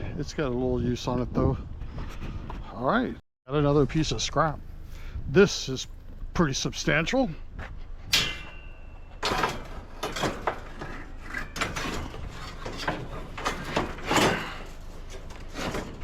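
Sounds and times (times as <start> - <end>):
scrap metal clanking and scraping: 8.0 - 16.0.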